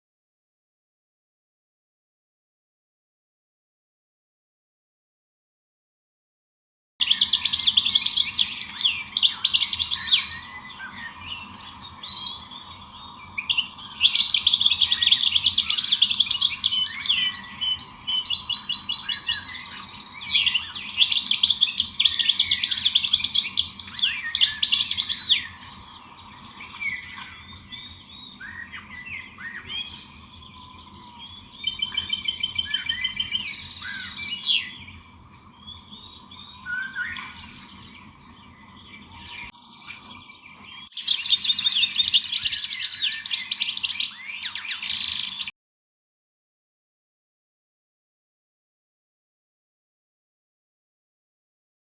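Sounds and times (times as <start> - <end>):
faint steady hum: 7.0 - 40.4
songbirds chirping and twittering: 7.0 - 45.5
whistled bird notes: 7.0 - 45.5.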